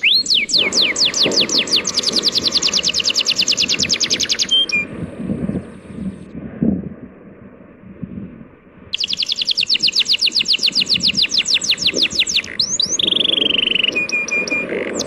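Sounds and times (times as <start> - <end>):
songbird trilling and whistling: 0.0 - 4.9, 8.9 - 15.0
sea waves rushing: 0.4 - 6.0.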